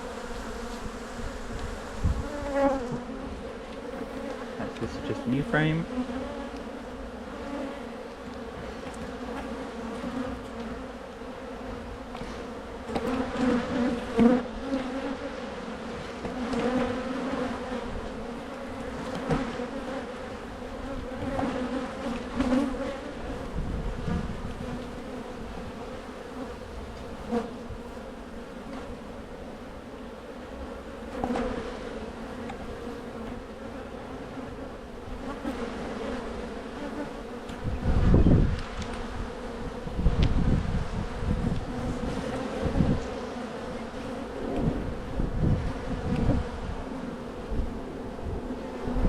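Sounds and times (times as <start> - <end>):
honey bees buzzing: 0.0 - 49.0.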